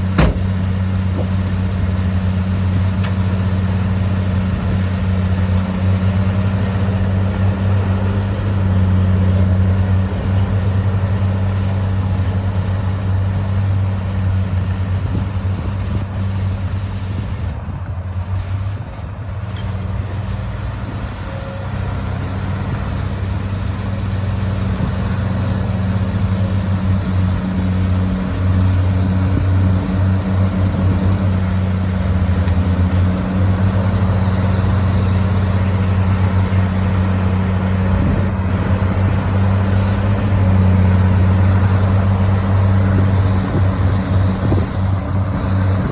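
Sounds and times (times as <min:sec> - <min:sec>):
bulldozer diesel engine humming: 0:00.0 - 0:45.9.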